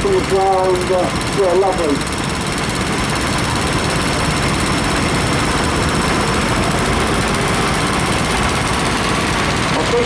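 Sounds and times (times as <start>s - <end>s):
tractor engines running: 0.0s - 10.0s.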